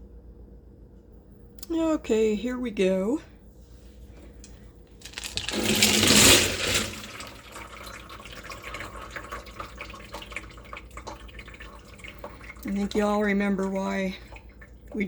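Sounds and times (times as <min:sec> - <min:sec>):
slurry and water pouring: 0:05.0 - 0:15.0.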